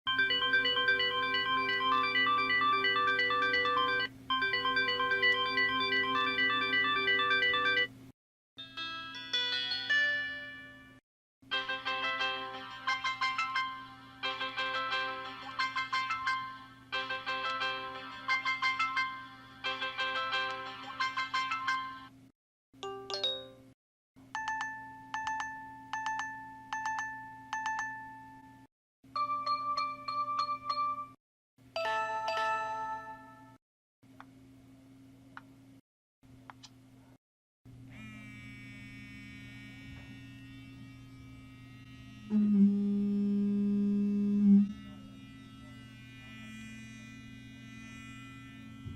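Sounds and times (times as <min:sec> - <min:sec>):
melodic ringtone: 0:00.1 - 0:07.9, 0:08.6 - 0:10.9, 0:11.5 - 0:22.1, 0:22.8 - 0:23.7, 0:24.4 - 0:31.2, 0:31.8 - 0:33.6
computer monitor hum: 0:00.1 - 0:08.1, 0:31.8 - 0:48.9.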